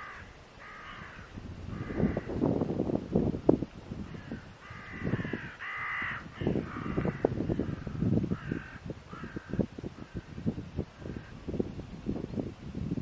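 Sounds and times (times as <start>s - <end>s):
bird cawing: 0.0s - 2.4s, 4.1s - 11.4s
wind buffeting the microphone: 0.0s - 13.0s.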